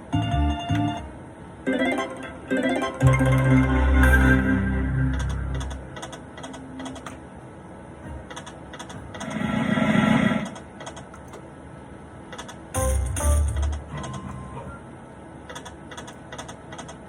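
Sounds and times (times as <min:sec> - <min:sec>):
slot machine button clicks: 0:01.7 - 0:07.2, 0:12.4 - 0:14.6
rushing swell: 0:09.2 - 0:10.6.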